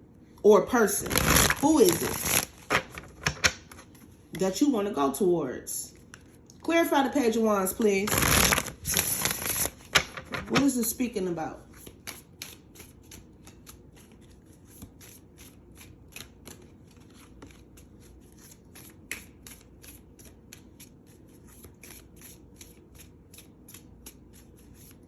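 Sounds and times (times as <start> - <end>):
cards being shuffled by hand: 1.0 - 4.1, 7.7 - 10.8, 11.7 - 25.0.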